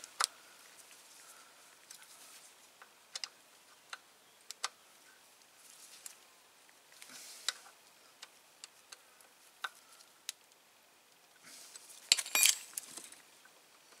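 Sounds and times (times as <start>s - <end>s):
metal tools clinking on metal: 12.1s - 12.7s.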